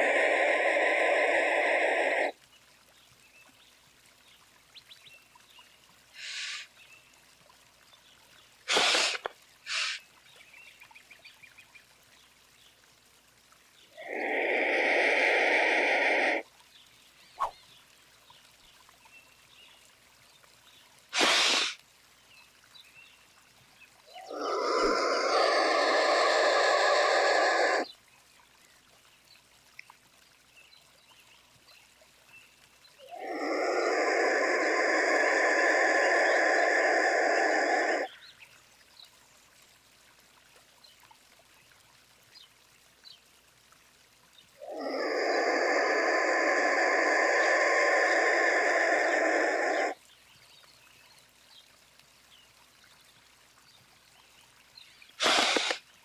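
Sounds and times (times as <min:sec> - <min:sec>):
bird calling harshly: 0:00.0 - 0:02.3, 0:06.2 - 0:06.7, 0:08.7 - 0:10.0, 0:14.0 - 0:16.4, 0:21.2 - 0:21.8, 0:24.2 - 0:27.9, 0:33.1 - 0:38.1, 0:44.6 - 0:50.0, 0:55.2 - 0:55.8.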